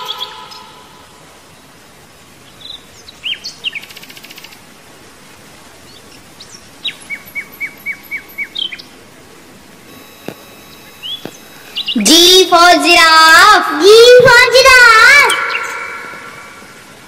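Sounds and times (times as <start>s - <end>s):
faint steady background noise: 0.0s - 17.0s
small birds chirping: 1.5s - 4.7s, 5.6s - 12.5s.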